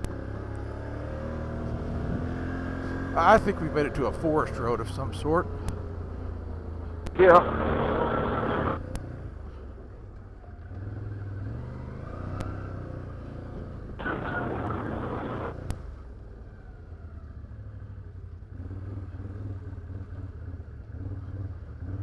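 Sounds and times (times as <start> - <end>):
atv engine drone: 1.2 - 6.0, 7.1 - 9.0, 12.2 - 15.7
rushing noise: 7.2 - 8.8, 14.0 - 15.6.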